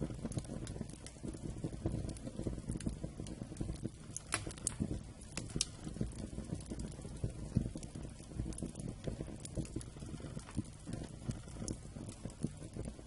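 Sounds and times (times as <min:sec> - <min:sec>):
fire crackling and popping: 0:00.0 - 0:13.0
fire rumbling: 0:00.0 - 0:13.0.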